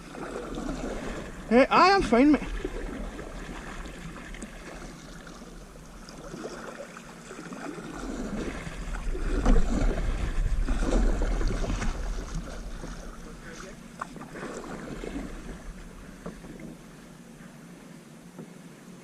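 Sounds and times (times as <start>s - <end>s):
water lapping against canoes: 0.0s - 19.0s
wind on microphone: 7.8s - 17.1s.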